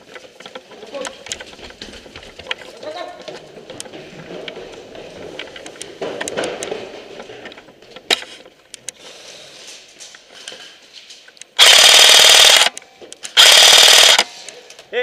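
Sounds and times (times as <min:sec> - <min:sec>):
airsoft rifle full-auto burst: 0:11.6 - 0:12.7, 0:13.4 - 0:14.3.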